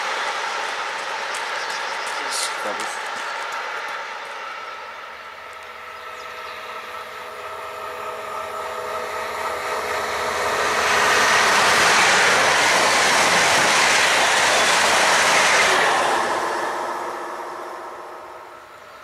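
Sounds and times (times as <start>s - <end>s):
passenger train passing: 0.0s - 19.0s.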